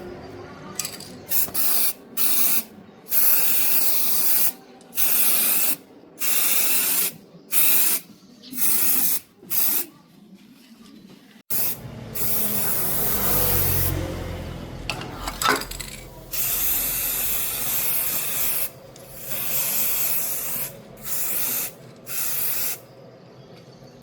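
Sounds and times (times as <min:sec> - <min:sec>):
spray paint hissing: 0:01.3 - 0:09.9, 0:11.5 - 0:14.0, 0:15.8 - 0:22.9.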